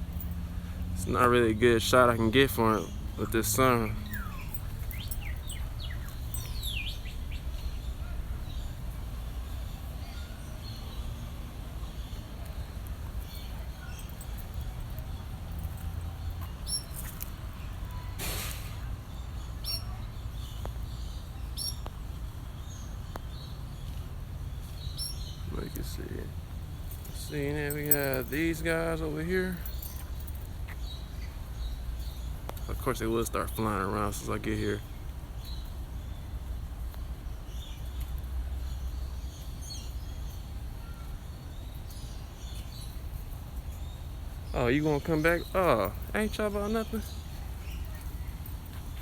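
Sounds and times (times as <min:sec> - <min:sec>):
bird chirping: 0:00.1 - 0:11.2, 0:37.4 - 0:49.0
bird chirps: 0:02.4 - 0:08.8.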